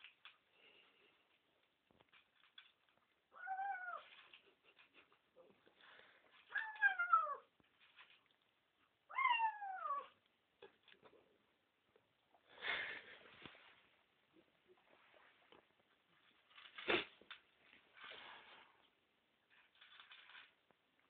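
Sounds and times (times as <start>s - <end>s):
cat meowing: 3.3s - 4.2s, 9.1s - 10.2s.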